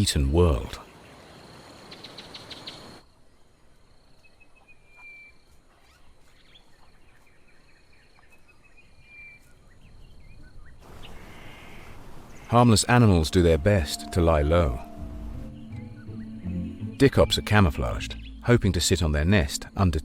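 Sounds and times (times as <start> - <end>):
drawn-out whistled calls: 4.5 - 7.0, 10.4 - 18.5.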